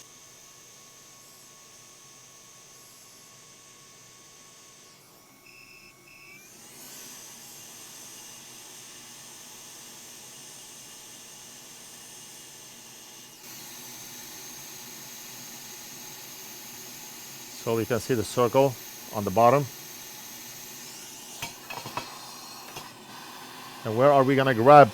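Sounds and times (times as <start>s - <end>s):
hot air blower blowing: 6.4s - 24.9s.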